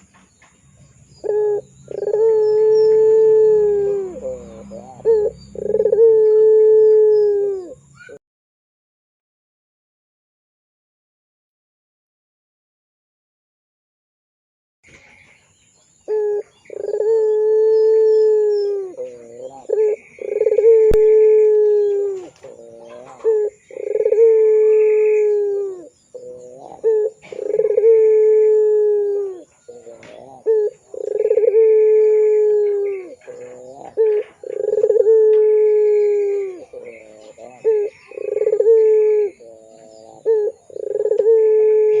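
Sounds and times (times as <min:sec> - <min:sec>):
dove cooing: 0:01.1 - 0:08.2, 0:16.1 - 0:42.0
dove rolling notes: 0:01.2 - 0:08.1, 0:16.1 - 0:42.0.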